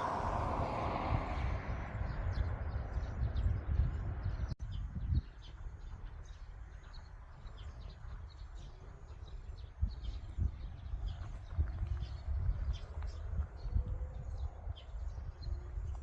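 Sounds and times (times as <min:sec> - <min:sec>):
low outdoor rumble: 0:00.0 - 0:16.0
small birds chirping: 0:01.8 - 0:16.0.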